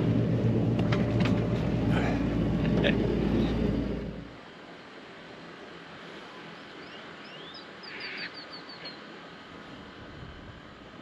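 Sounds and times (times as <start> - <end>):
faint steady hiss: 2.0 - 11.0
bird chirping: 6.6 - 9.0.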